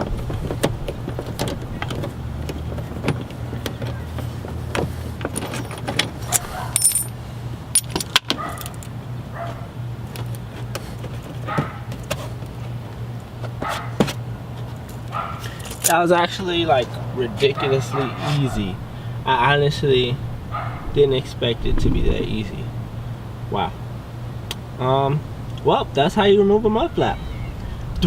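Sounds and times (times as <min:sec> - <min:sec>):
steady low hum: 0:00.0 - 0:08.0, 0:14.2 - 0:28.0.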